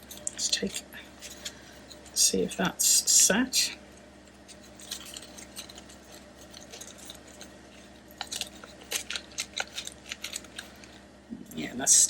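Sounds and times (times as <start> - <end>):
paper rustling: 4.5 - 11.0.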